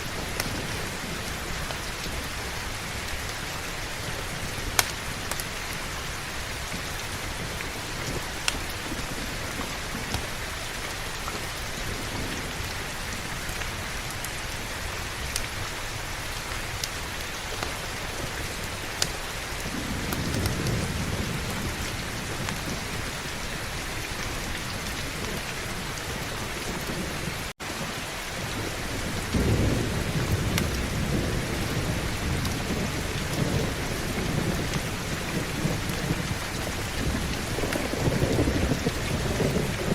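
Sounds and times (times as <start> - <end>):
heavy steady rain: 0.0 - 39.9
low rolling thunder: 17.4 - 39.9.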